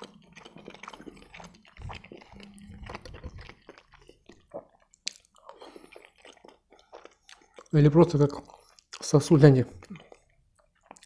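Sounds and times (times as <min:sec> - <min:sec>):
biting and chewing: 0:00.0 - 0:11.0.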